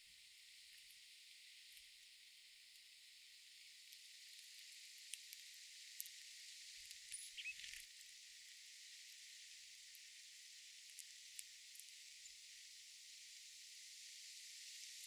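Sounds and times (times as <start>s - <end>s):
light ticks: 3.9s - 7.9s, 10.8s - 12.0s
faint bird chirp: 7.1s - 7.8s.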